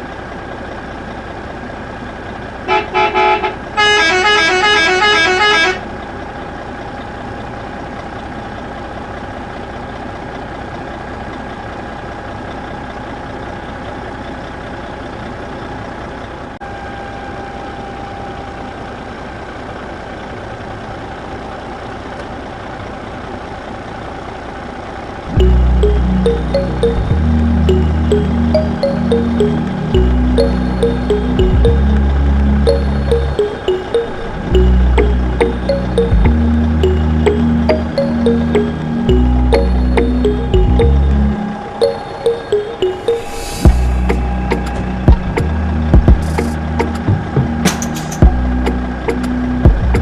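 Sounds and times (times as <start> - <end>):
vehicle engine running: 19.4 - 33.4, 34.2 - 41.8, 43.7 - 50.0.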